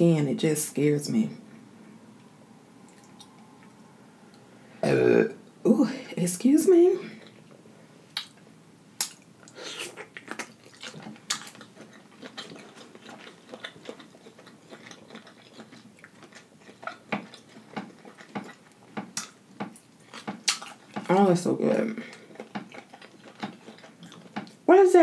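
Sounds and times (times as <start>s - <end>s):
person chewing with wet smacks: 2.9s - 3.8s, 8.1s - 21.3s, 22.0s - 24.6s.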